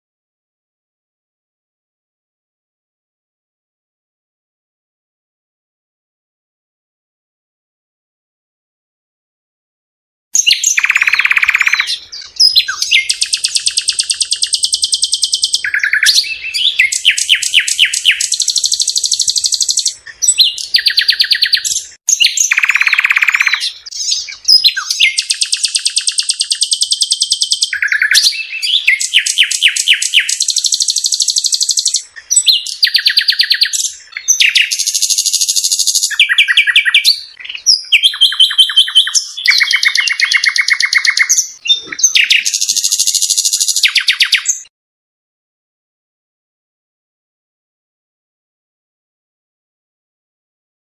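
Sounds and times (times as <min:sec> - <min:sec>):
songbird singing trills and chirps: 0:10.4 - 0:44.7.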